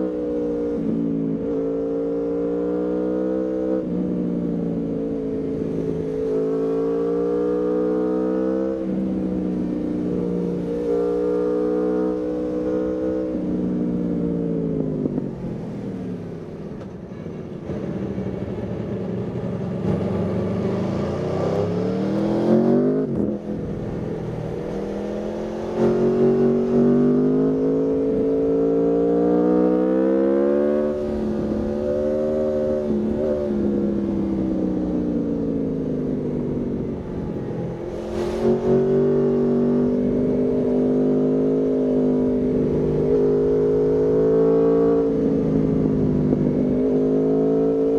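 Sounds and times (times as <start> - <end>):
motorcycle engine accelerating: 17.6 - 47.9.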